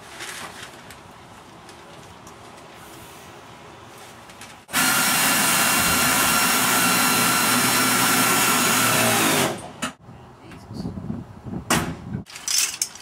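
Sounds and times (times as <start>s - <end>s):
power tool running with whine: 4.7s - 9.6s.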